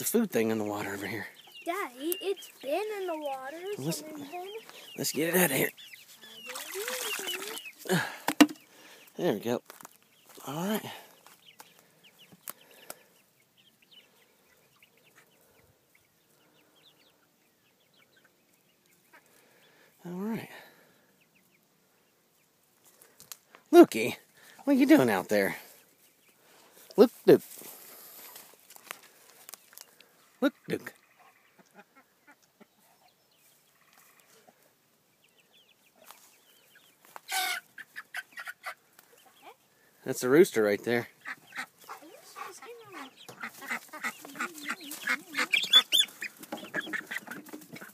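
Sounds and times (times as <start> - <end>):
chicks peeping: 0.0 - 47.9
high-pitched chirping call: 1.4 - 7.9, 41.2 - 47.1.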